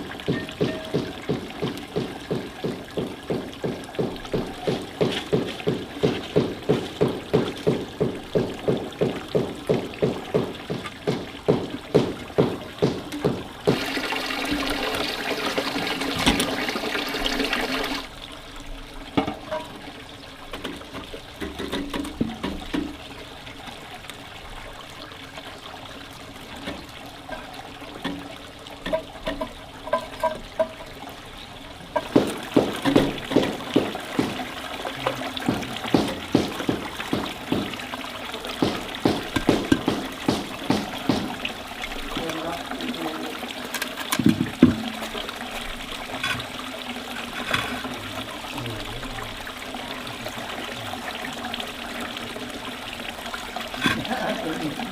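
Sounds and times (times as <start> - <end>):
scattered knocks: 0.0 - 14.2, 32.0 - 37.9, 38.5 - 41.6, 44.1 - 45.0
faint water trickling: 0.0 - 54.9
water pouring: 0.0 - 54.9.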